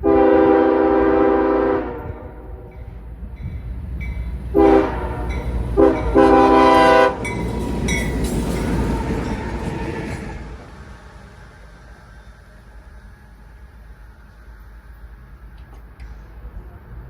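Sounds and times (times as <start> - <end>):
locomotive air horn blasts: 0.0 - 2.7, 4.5 - 7.4
locomotive engine rumble: 0.0 - 17.0.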